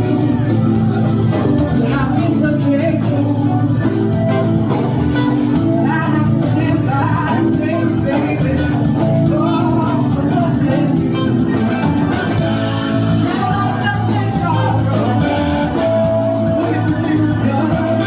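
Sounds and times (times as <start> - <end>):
blues-rock band playing: 0.0 - 18.0.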